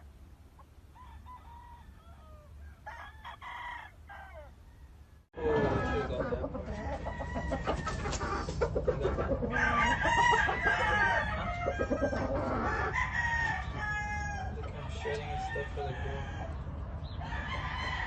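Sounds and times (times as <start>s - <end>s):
roosters crowing: 0.8s - 18.0s
chickens clucking: 5.4s - 18.0s.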